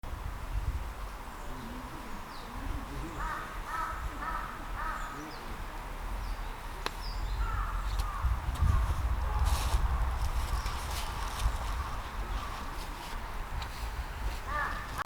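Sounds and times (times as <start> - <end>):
low wind rumble: 0.0 - 15.0
harsh bird calls: 1.4 - 9.4, 14.5 - 15.0.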